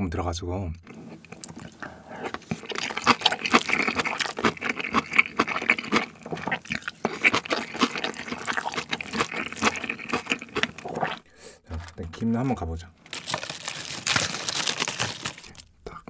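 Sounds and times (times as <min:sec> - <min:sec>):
wet chewing and lip smacking: 0:00.9 - 0:11.3.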